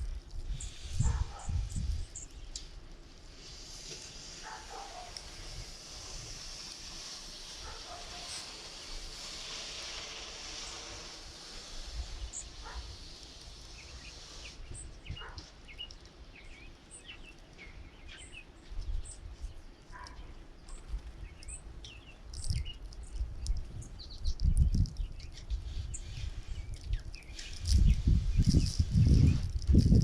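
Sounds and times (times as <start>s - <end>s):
wind gusts on microphone: 0.0s - 2.5s, 22.4s - 30.0s
songbirds chirping: 0.5s - 3.0s, 12.0s - 29.6s.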